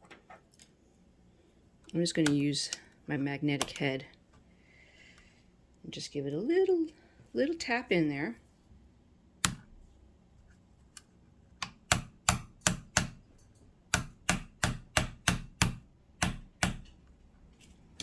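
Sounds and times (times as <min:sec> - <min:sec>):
tool tapping on metal part: 0:11.6 - 0:17.0.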